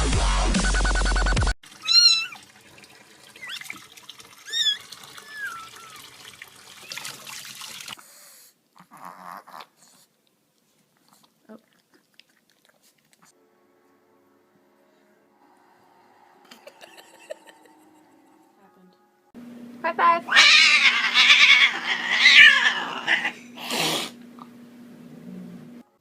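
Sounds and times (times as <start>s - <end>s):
cat meowing: 1.8s - 2.4s, 4.5s - 6.0s, 20.3s - 23.4s.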